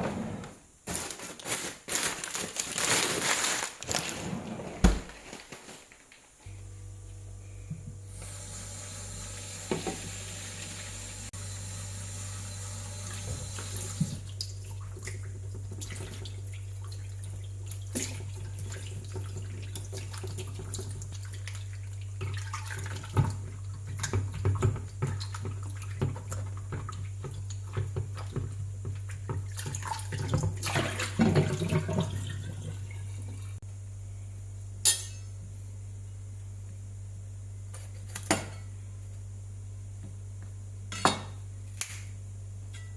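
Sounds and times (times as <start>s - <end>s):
steady low hum: 6.4s - 29.4s, 32.7s - 42.9s
splashing and clinks in sink: 15.8s - 33.0s.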